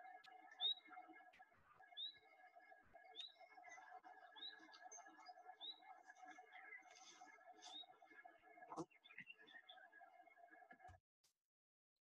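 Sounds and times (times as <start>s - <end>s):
bird chirping: 0.0s - 1.2s, 1.8s - 9.9s.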